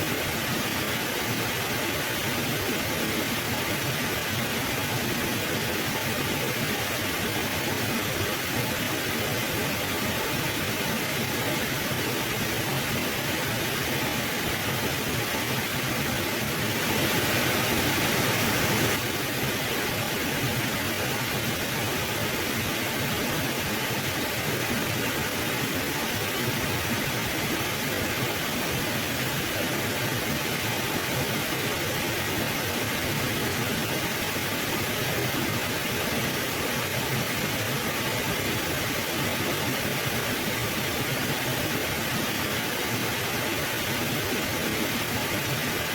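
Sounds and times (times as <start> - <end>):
river water rushing: 12.0 - 45.9.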